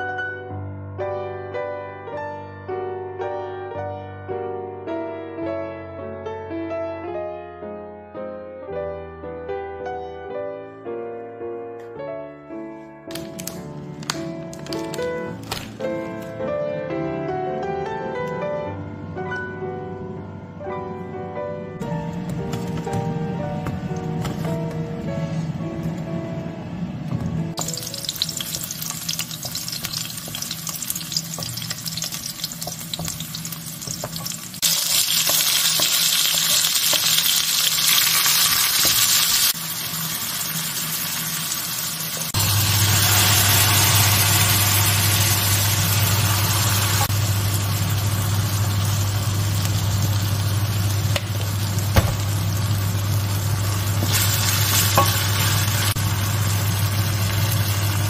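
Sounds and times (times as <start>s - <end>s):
food sizzling in oil: 27.6s - 58.0s.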